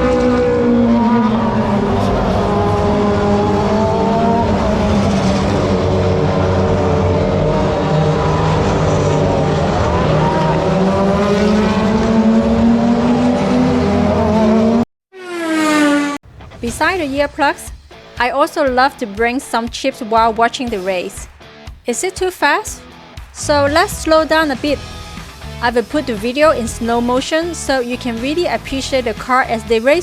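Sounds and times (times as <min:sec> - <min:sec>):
race car engines passing: 0:00.0 - 0:18.1, 0:23.4 - 0:27.2.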